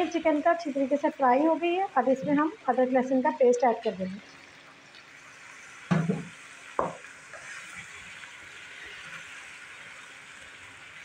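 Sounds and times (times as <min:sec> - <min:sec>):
food sizzling in a wok: 0:00.0 - 0:11.0
spatula knocking in pan: 0:05.9 - 0:07.1.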